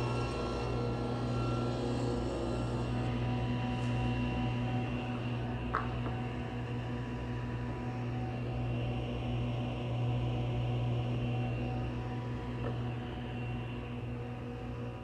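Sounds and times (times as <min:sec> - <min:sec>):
table saw motor running: 0:00.0 - 0:06.6.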